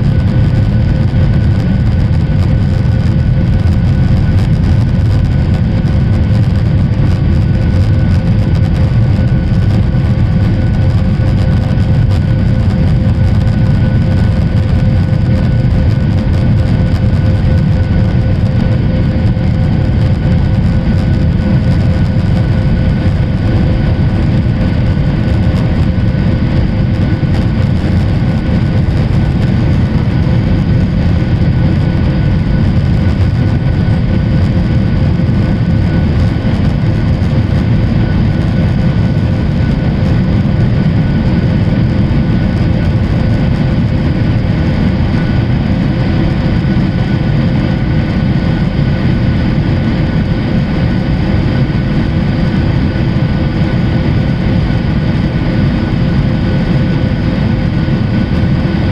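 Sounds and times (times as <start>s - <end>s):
engine whine: 0.0s - 58.9s
jet engine drone: 0.0s - 58.9s.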